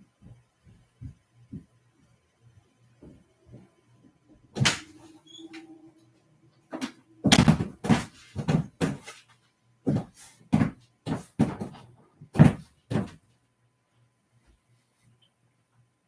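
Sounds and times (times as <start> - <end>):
loud knocks and bangs: 7.2 - 8.7.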